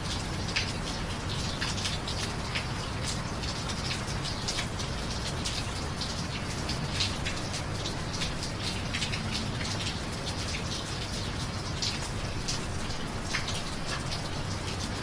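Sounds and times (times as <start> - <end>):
raindrops splashing close by: 0.0 - 15.0.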